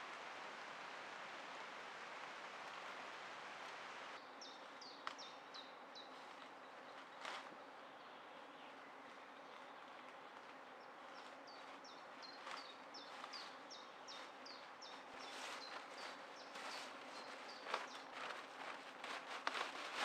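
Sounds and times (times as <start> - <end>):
outdoor hiss: 0.0 - 4.2.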